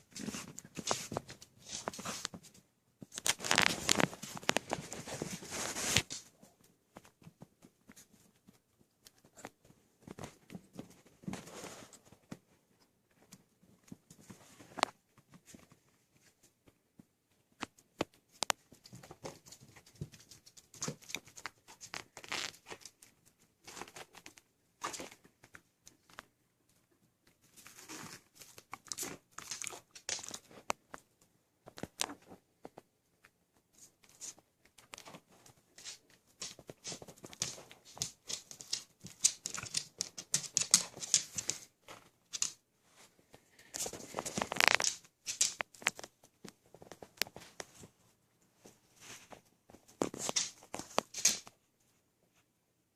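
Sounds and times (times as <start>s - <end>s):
puppies rustling in bedding: 0.0s - 16.8s, 46.6s - 51.4s.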